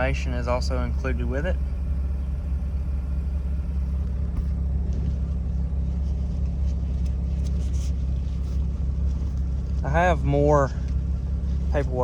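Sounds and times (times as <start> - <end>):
rotary engine idling: 0.0 - 12.0.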